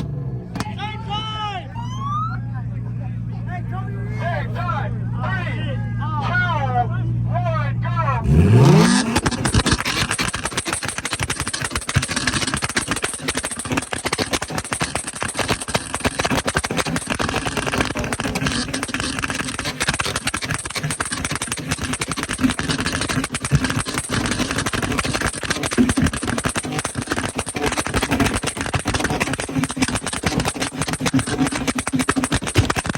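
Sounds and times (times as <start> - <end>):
car engine revving: 8.0 - 32.9
exhaust crackling and popping: 8.0 - 32.9.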